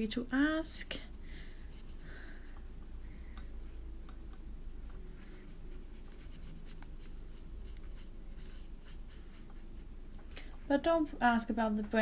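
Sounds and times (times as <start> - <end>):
low steady hum: 0.0 - 12.0
brush strokes on paper: 1.4 - 2.5, 4.6 - 9.9.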